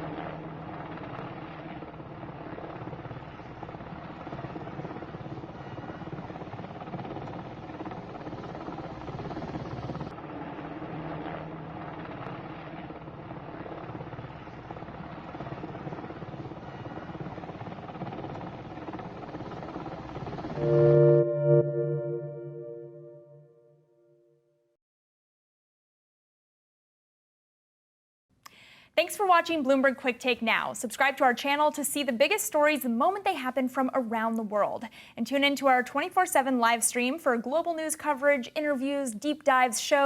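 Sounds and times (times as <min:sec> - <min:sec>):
helicopter flying overhead: 0:00.0 - 0:23.4.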